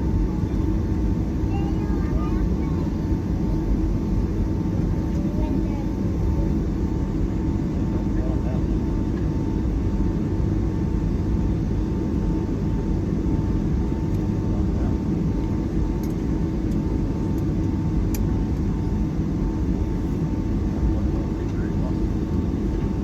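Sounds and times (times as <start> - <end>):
airliner cabin rumble: 0.0 - 23.0.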